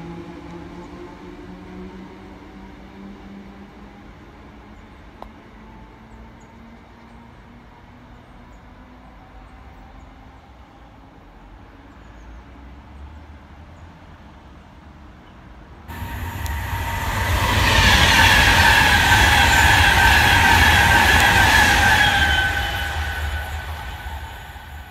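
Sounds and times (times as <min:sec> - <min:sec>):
electric train passing at speed: 0:00.0 - 0:06.0, 0:15.9 - 0:24.9.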